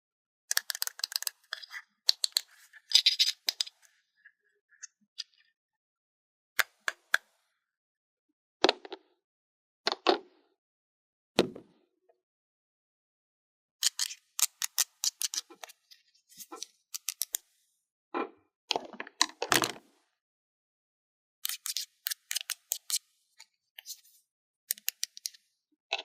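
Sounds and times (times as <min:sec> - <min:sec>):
plastic toy pieces clicking: 0:00.5 - 0:02.4.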